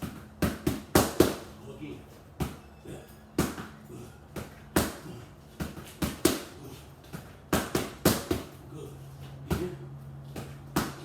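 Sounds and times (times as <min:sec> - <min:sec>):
boxing punches smacking: 0:00.0 - 0:01.5, 0:03.4 - 0:08.6, 0:09.4 - 0:11.0.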